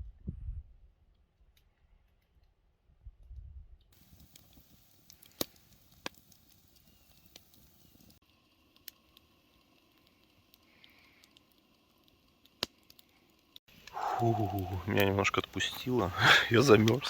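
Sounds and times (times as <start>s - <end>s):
campfire crackling: 4.0s - 17.0s.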